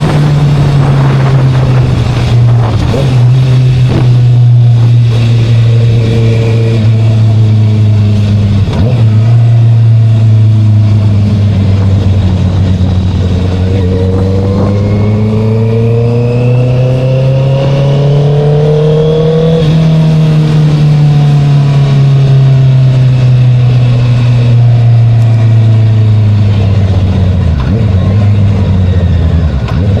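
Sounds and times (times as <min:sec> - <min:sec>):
motorcycle engine: 0:00.0 - 0:30.0.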